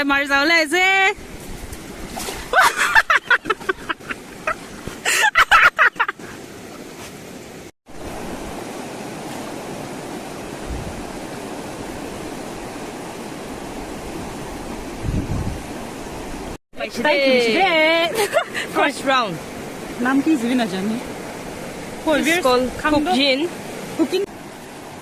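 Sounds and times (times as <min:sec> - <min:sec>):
river water flowing: 0:00.0 - 0:25.0
person talking: 0:22.0 - 0:24.3.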